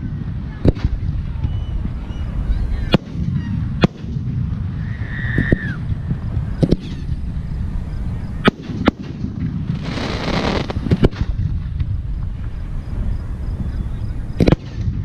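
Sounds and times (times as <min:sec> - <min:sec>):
steady low rumble: 0:00.0 - 0:15.0
firework shells bursting: 0:06.2 - 0:12.6.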